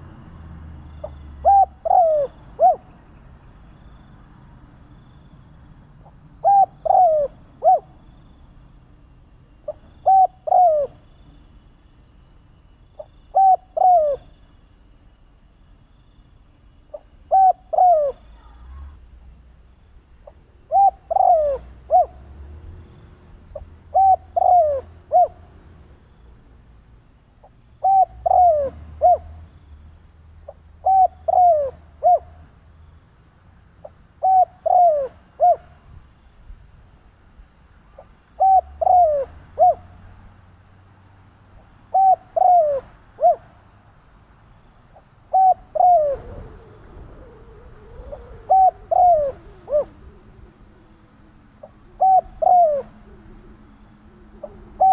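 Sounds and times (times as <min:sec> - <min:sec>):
dove cooing: 0:01.0 - 0:02.9, 0:06.4 - 0:08.0, 0:09.7 - 0:11.0, 0:13.0 - 0:14.3, 0:16.9 - 0:18.9, 0:20.2 - 0:22.2, 0:23.5 - 0:25.4, 0:27.8 - 0:29.4, 0:30.5 - 0:32.4, 0:34.2 - 0:35.7, 0:38.0 - 0:39.8, 0:41.9 - 0:43.5, 0:45.3 - 0:54.9.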